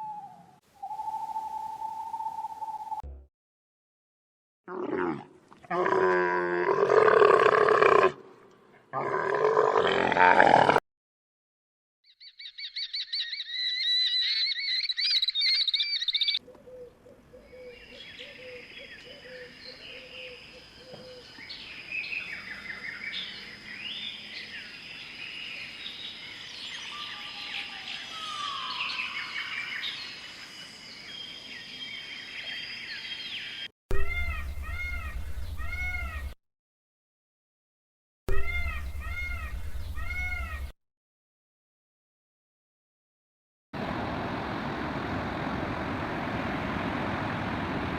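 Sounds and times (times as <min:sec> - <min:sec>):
small birds chirping: 0:12.0 - 0:36.4, 0:38.3 - 0:40.7
high mewing calls: 0:12.2 - 0:16.9, 0:33.9 - 0:36.4, 0:38.3 - 0:40.7.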